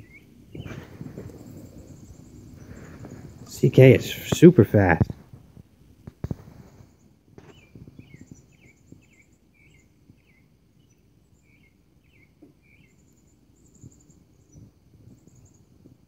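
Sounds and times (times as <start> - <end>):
high bird trills: 0.0 - 4.3
bird chirping: 0.0 - 4.9, 6.8 - 15.8.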